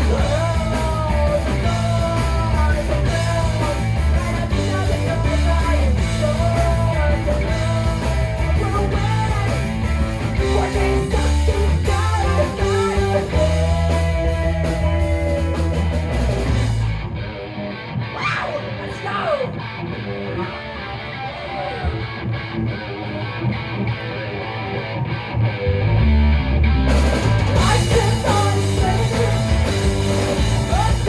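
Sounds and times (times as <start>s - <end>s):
electric guitar and bass: 0.0s - 31.0s.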